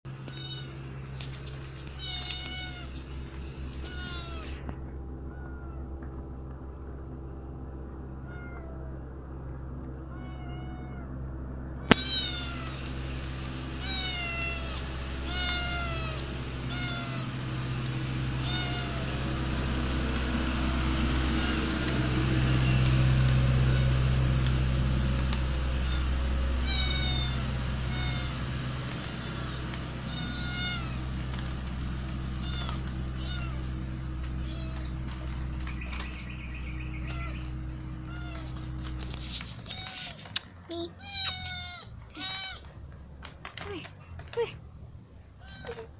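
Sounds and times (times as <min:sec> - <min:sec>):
steady low hum: 0:00.1 - 0:45.9
kitten meowing: 0:00.2 - 0:00.9, 0:01.9 - 0:03.0, 0:03.7 - 0:05.9, 0:08.2 - 0:08.8, 0:10.1 - 0:11.1, 0:11.8 - 0:12.9, 0:13.8 - 0:17.4, 0:18.4 - 0:19.2, 0:20.9 - 0:24.1, 0:25.0 - 0:31.0, 0:32.4 - 0:33.7, 0:34.3 - 0:36.0, 0:37.0 - 0:42.7, 0:45.3 - 0:45.9.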